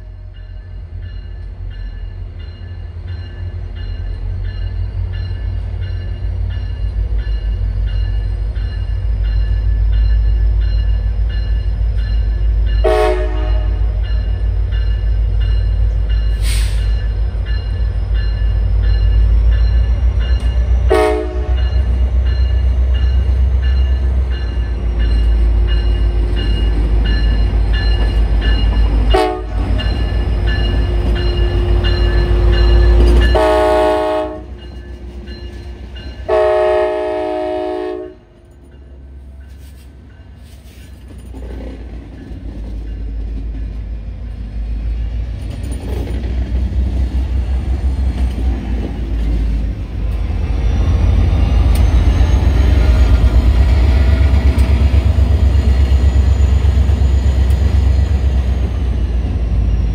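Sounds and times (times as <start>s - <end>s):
diesel train engine rumble: 0.0s - 59.9s
train horn: 12.8s - 14.0s, 20.8s - 21.9s, 29.1s - 29.7s, 32.2s - 34.6s, 36.2s - 38.4s.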